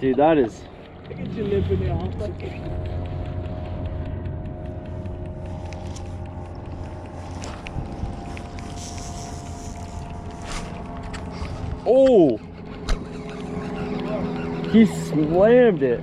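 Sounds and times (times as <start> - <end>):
sharp clicks: 0.0 - 15.6
motorboat engine running: 0.0 - 16.0.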